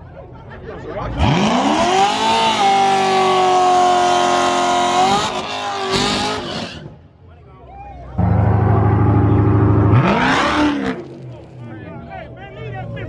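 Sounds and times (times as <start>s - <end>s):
drag racing car engine revving: 1.0s - 7.0s, 8.2s - 11.8s.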